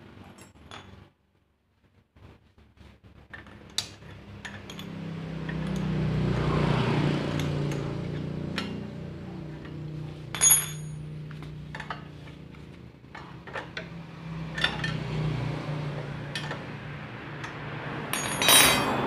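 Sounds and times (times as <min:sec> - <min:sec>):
engine: 0:01.9 - 0:19.0
metal tools clinking: 0:09.6 - 0:11.1, 0:14.5 - 0:15.1, 0:17.4 - 0:19.0.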